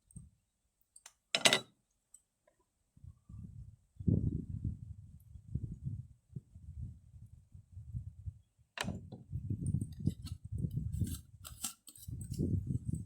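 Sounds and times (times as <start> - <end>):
wind buffeting microphone: 3.0 - 13.0
clicks and rattles of food handling: 9.8 - 12.6.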